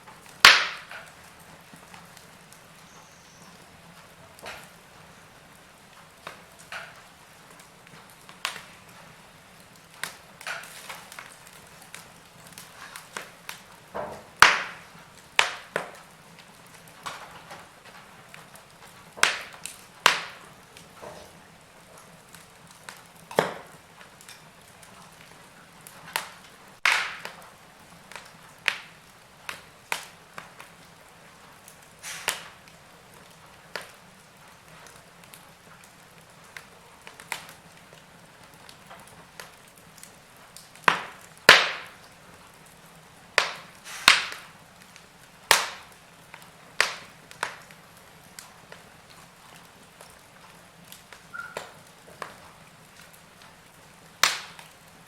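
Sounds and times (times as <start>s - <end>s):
faint steady hiss: 0.0s - 55.0s
wood fire crackling: 0.0s - 55.0s.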